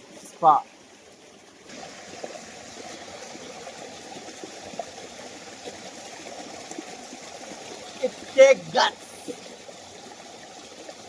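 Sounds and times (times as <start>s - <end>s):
waterfall splashing: 8.0s - 9.4s.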